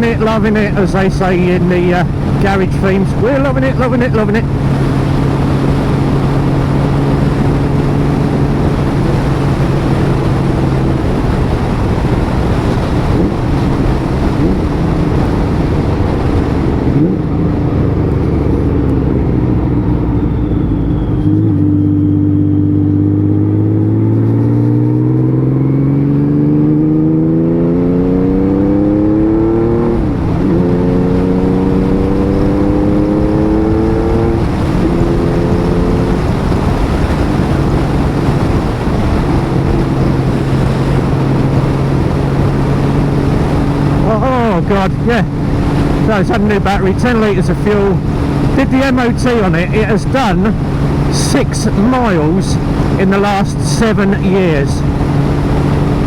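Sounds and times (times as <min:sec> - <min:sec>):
motorcycle engine: 0:00.0 - 0:56.0
wind rushing: 0:28.3 - 0:56.0.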